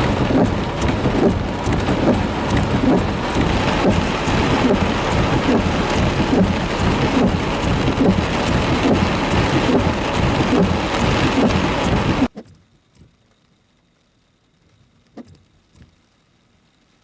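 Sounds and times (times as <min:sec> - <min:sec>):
heavy rain pouring: 0:00.0 - 0:12.3.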